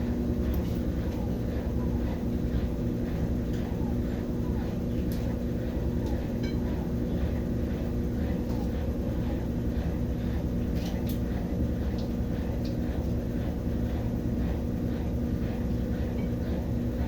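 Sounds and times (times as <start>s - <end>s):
washing machine spin cycle hum: 0.0s - 17.0s.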